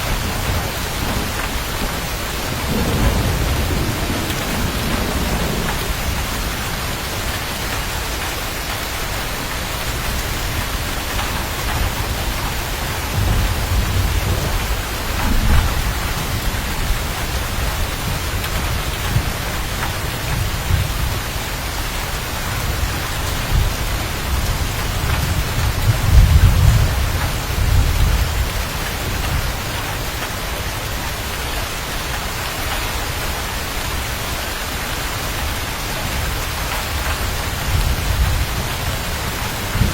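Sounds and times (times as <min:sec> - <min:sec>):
thunder rolling: 0:00.0 - 0:08.3, 0:10.5 - 0:21.7, 0:22.4 - 0:29.8
heavy rain: 0:00.0 - 0:39.9.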